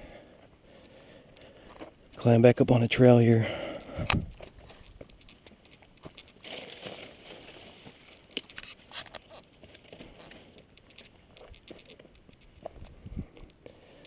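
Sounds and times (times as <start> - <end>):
brush rustling: 4.3 - 13.0
footsteps crunching on sand: 4.3 - 13.4.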